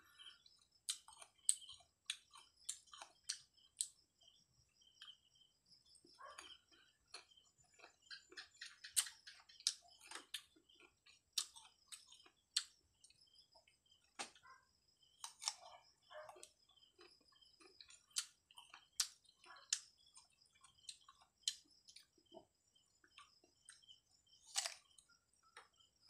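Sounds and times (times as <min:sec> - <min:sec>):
soft chewing: 0:00.0 - 0:26.0
crisp crunching bites of mango: 0:24.4 - 0:25.0.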